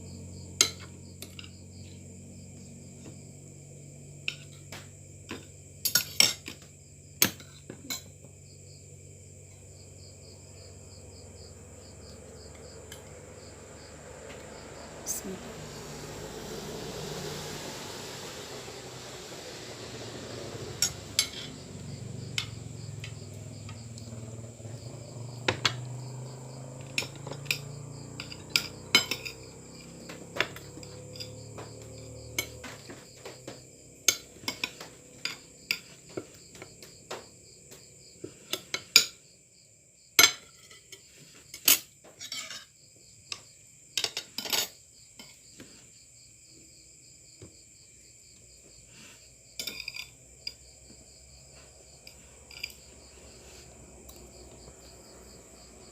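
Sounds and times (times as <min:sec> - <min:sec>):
crickets chirping: 0:00.0 - 0:55.9
low hum: 0:10.4 - 0:32.8
cutlery clinking on a plate: 0:27.0 - 0:29.4, 0:40.2 - 0:41.0, 0:41.6 - 0:42.7, 0:49.6 - 0:50.6.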